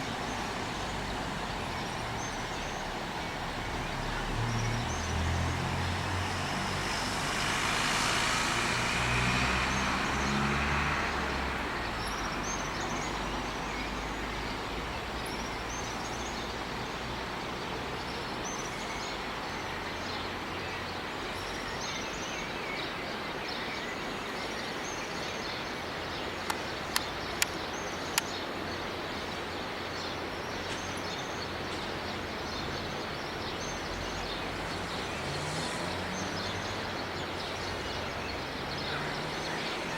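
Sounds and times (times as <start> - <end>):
road vehicle passing: 0.0 - 18.0, 31.8 - 39.9
small birds chirping: 23.9 - 39.9
sharp clicks: 26.5 - 28.4.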